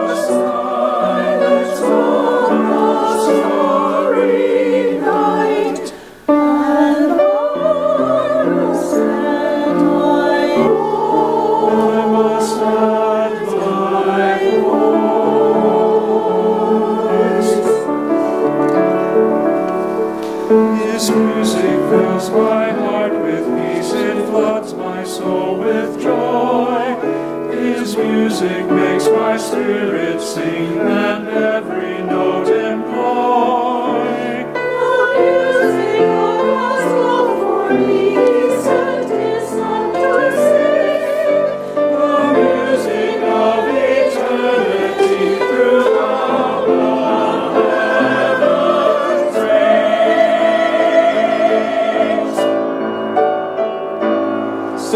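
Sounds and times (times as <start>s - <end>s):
church choir singing: 0.0s - 54.9s.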